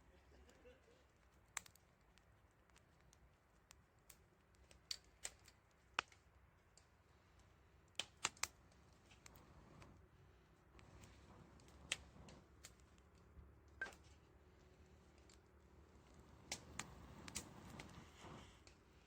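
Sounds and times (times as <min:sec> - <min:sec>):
campfire crackling pops: 0:00.4 - 0:19.0.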